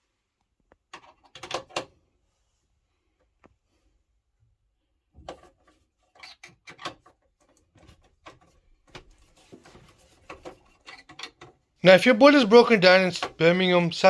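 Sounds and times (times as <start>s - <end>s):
tools and parts clicking: 0.9s - 1.9s, 10.2s - 11.6s.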